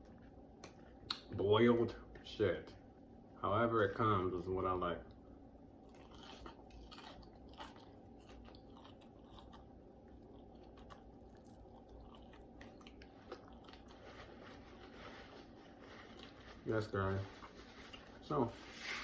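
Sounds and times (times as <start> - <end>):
person chewing chicken wings: 5.8 - 14.8.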